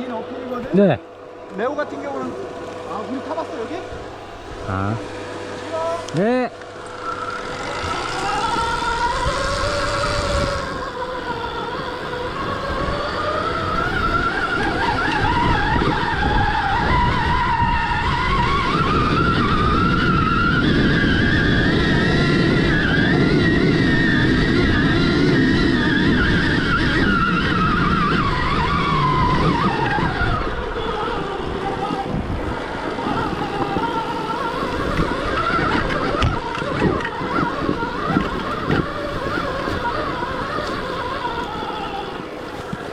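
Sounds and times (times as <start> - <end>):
tyre and chassis noise on dirt: 0.0 - 11.3
electric motorbike motor whining: 0.0 - 42.9.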